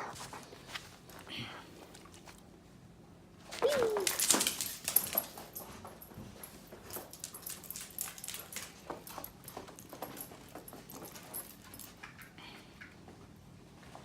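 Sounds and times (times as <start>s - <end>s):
dog whimpering: 3.6s - 4.4s.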